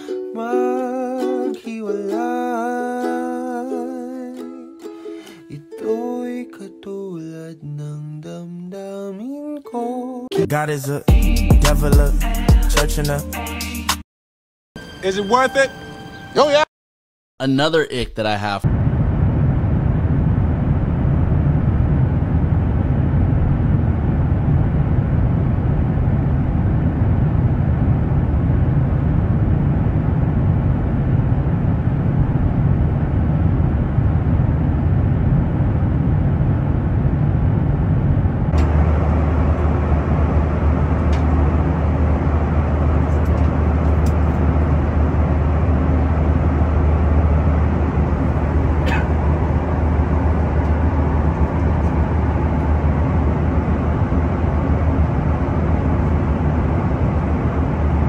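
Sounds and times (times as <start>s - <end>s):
airplane cabin engine rumble: 18.0s - 58.0s.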